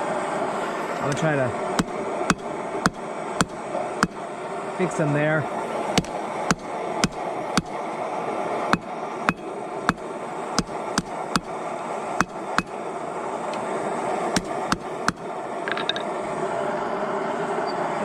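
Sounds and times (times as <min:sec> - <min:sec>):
steady background noise: 0:00.0 - 0:18.0
hammer striking hot steel: 0:01.0 - 0:04.4, 0:05.9 - 0:07.8, 0:08.7 - 0:12.8, 0:14.3 - 0:16.1.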